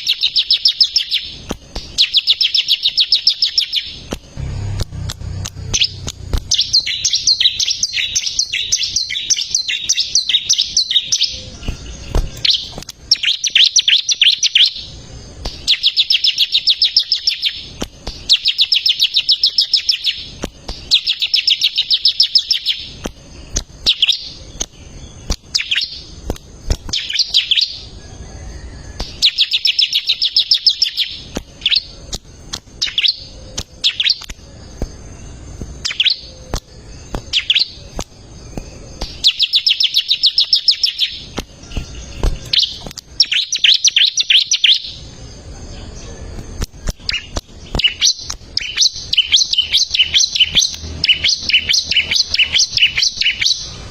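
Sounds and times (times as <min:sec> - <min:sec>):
bird chirping song: 0:00.0 - 0:53.9.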